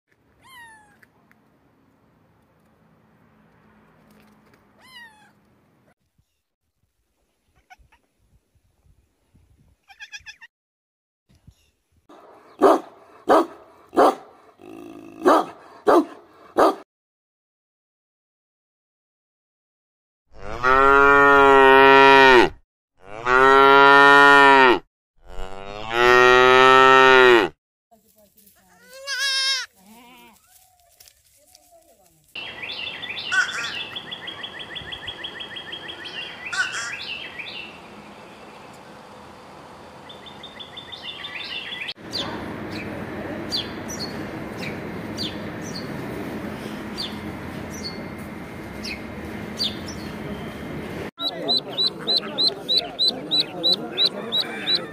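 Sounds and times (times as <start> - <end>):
cow mooing: 14.6 - 15.4, 20.4 - 27.5
songbird trill: 32.4 - 39.3, 39.9 - 42.9, 46.9 - 48.2, 48.8 - 54.9.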